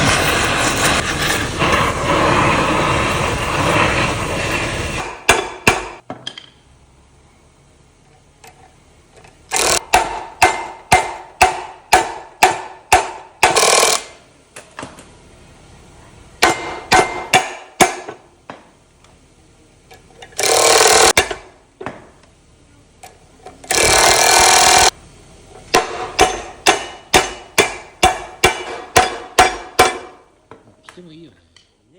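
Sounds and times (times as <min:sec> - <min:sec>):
harsh noisy bursts: 0:00.0 - 0:06.0, 0:20.4 - 0:21.2, 0:23.7 - 0:24.9
hammer blows ringing on metal: 0:05.0 - 0:06.0, 0:09.8 - 0:13.8, 0:16.4 - 0:18.2, 0:25.7 - 0:30.3.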